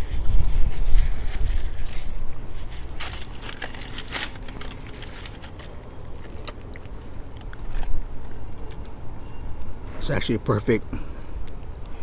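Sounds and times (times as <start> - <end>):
foil wrapper crinkling: 0.0 - 8.5
eating noises: 5.4 - 9.0.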